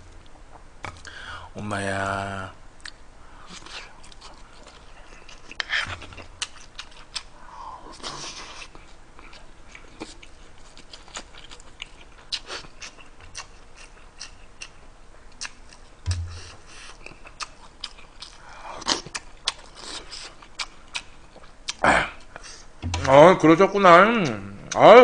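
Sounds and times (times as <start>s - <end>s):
wet chewing and lip smacks: 3.6s - 7.3s, 8.0s - 22.4s
low thump: 16.1s - 16.6s, 22.8s - 23.2s.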